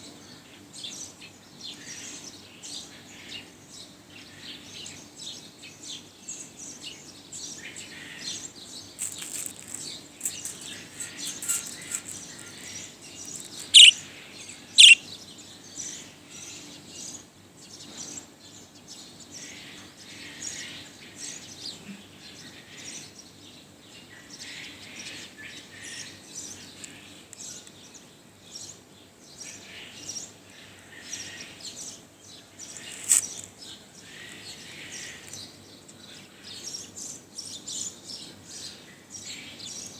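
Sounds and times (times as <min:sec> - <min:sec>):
budgerigar chattering: 0:09.0 - 0:14.0, 0:14.8 - 0:15.0
loud sharp bird calls: 0:09.0 - 0:15.2.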